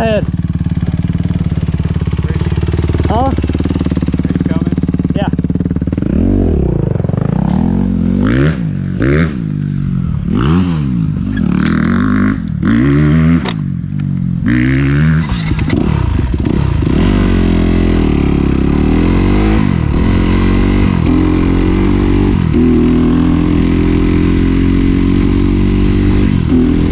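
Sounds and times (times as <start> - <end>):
dirt bike engine revving: 0.0 - 26.9.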